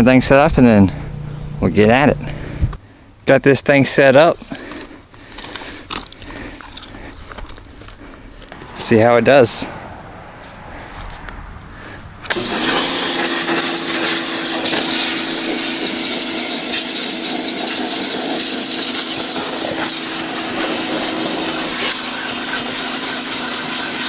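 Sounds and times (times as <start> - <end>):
pressure washer motor humming: 0.8 - 2.8, 12.3 - 24.0
water jet spraying hiss: 12.3 - 24.0.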